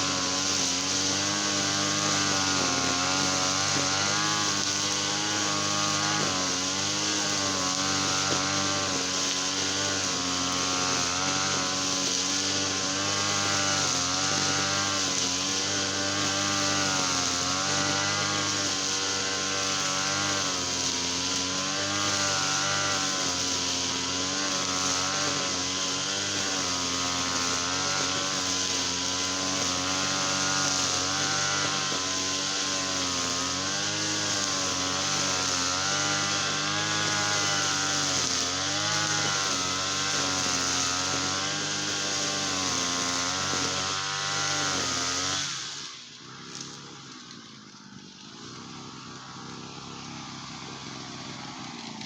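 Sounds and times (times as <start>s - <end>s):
small petrol engine running: 0.0s - 52.0s.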